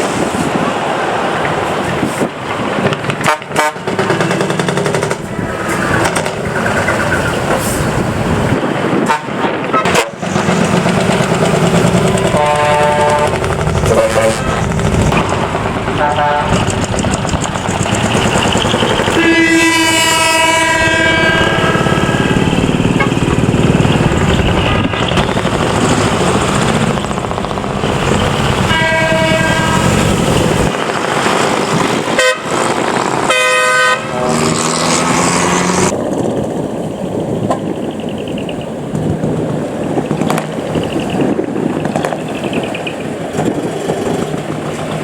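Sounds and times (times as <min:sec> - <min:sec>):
loud truck exhausts: 0:03.1 - 0:30.7, 0:32.1 - 0:36.0
truck horn blasts: 0:03.2 - 0:04.0, 0:08.9 - 0:10.2, 0:12.3 - 0:14.7, 0:16.0 - 0:16.8, 0:19.0 - 0:23.8, 0:28.6 - 0:30.2, 0:32.2 - 0:32.6, 0:33.3 - 0:34.7.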